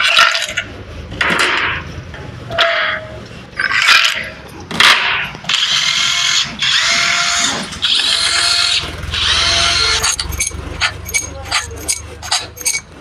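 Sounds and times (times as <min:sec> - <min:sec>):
power tool running: 0:05.5 - 0:12.8.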